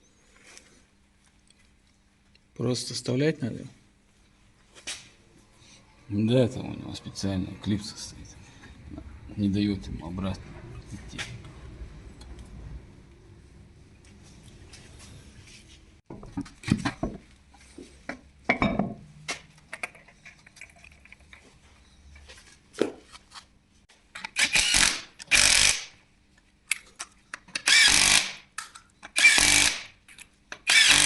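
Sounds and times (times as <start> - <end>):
handheld power tool bursts: 24.2 - 25.9, 27.6 - 28.5, 29.1 - 29.9, 30.6 - 31.0.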